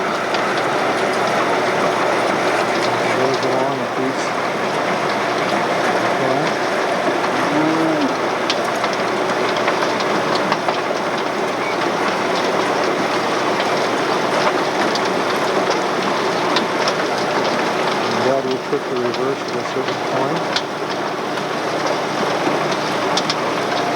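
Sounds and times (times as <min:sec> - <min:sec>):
machinery clattering: 0:00.0 - 0:11.2.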